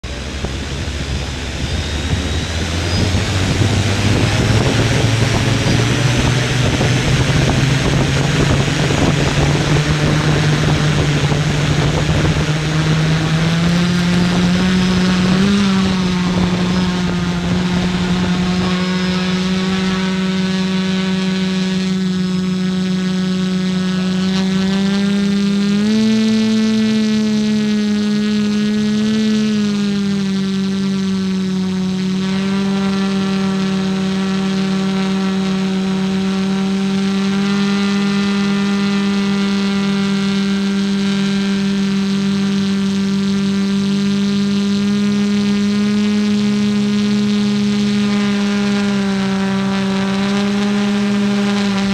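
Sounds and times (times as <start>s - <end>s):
rushing noise: 0.0s - 19.9s
drone motors humming: 0.0s - 51.9s.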